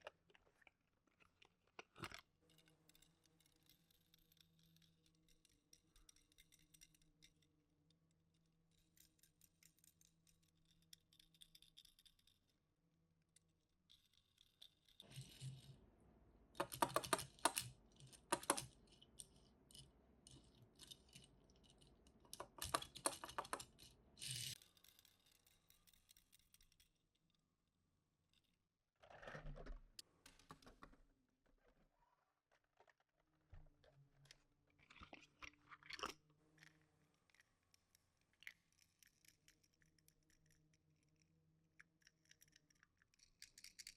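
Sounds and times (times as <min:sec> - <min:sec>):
toy cars clicking and rattling: 0:01.5 - 0:07.5, 0:08.7 - 0:12.5, 0:13.9 - 0:15.7, 0:16.6 - 0:27.0, 0:34.9 - 0:43.9.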